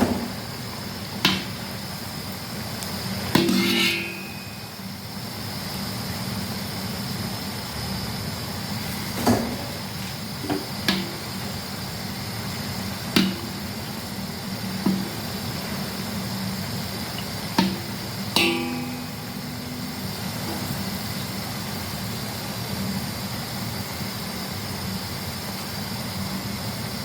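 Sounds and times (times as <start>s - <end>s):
dough frying in hot oil: 0.0s - 27.0s
metal utensil clinking on pan: 3.4s - 4.6s, 18.4s - 20.0s.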